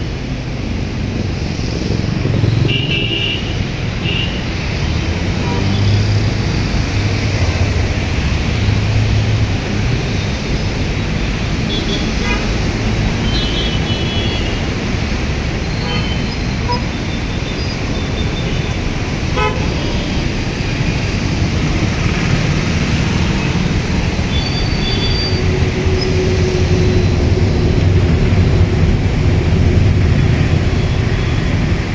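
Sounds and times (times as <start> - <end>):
low rumble of vehicles: 0.0 - 31.9
vehicle horn toots: 19.4 - 20.0.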